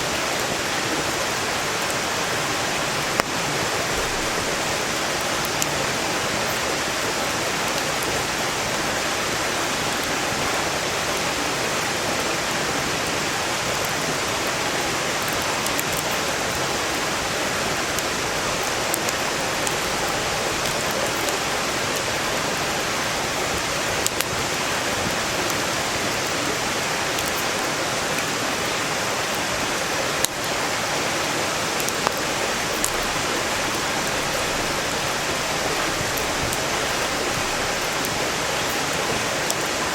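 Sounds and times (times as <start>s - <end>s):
crackling firewood: 0.0s - 39.9s
mountain stream rushing: 0.0s - 39.9s.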